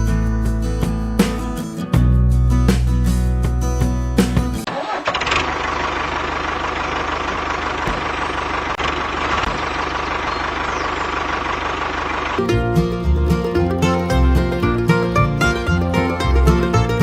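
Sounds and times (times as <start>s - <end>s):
music: 0.0s - 4.7s, 12.4s - 17.0s
small tractor motor running: 4.7s - 17.0s.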